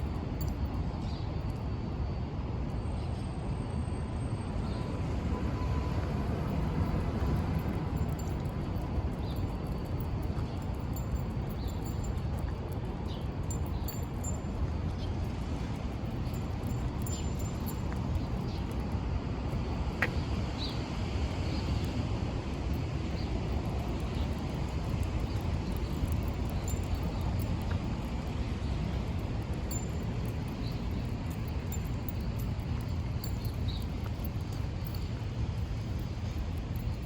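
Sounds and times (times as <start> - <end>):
low street rumble: 0.0 - 37.0.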